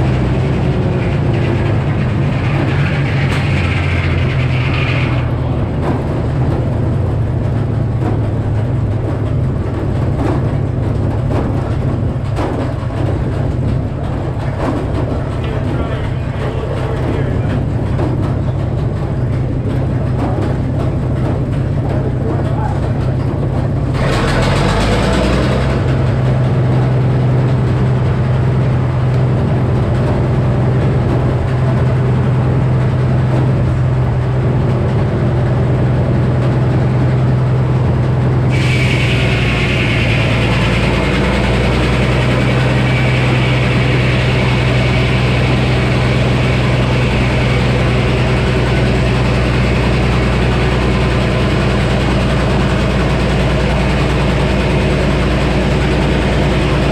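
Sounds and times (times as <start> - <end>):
sawmill engine and saw humming: 0.0 - 56.9
saw blade cutting log: 38.5 - 48.7.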